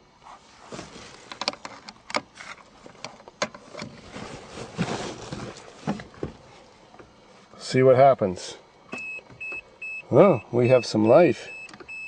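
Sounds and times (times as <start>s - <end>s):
soft rustling: 0.2s - 7.5s.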